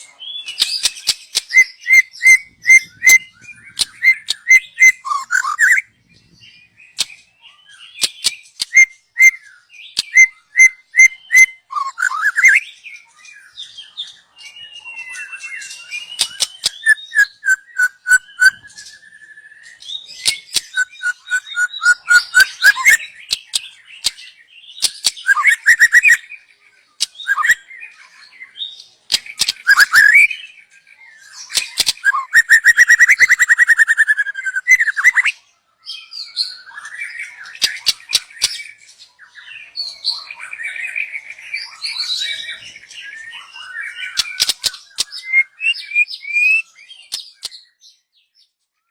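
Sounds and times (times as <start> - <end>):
bird whistling song: 0.0 - 48.9
bird clicking calls: 0.6 - 2.4, 3.8 - 5.8, 8.0 - 9.4, 10.0 - 12.5, 16.1 - 18.6, 20.2 - 24.2, 24.8 - 26.2, 27.0 - 27.6, 29.1 - 30.2, 31.5 - 35.3, 44.1 - 45.4.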